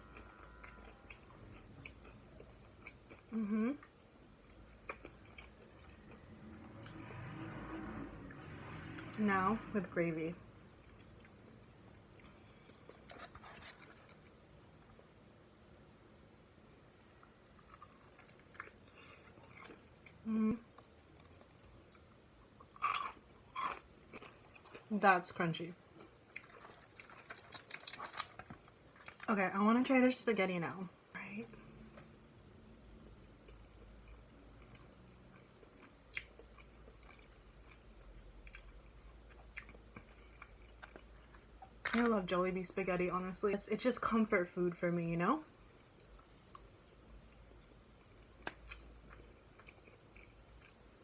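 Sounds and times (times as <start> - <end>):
crunchy chewing: 0.1 - 7.4, 12.0 - 14.6, 17.0 - 20.2, 20.8 - 24.9, 25.9 - 29.3, 33.5 - 37.8, 45.7 - 50.9.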